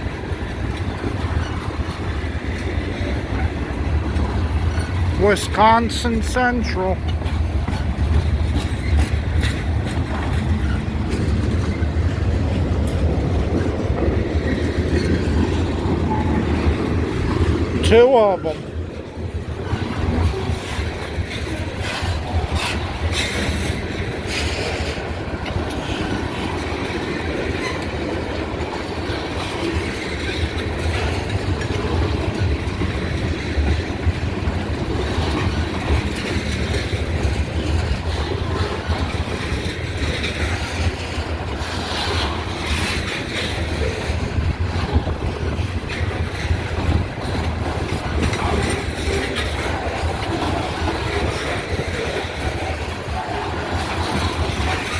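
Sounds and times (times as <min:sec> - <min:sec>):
train cars rolling past: 0:00.0 - 0:54.9
wheels clicking over rail joints: 0:00.0 - 0:54.9.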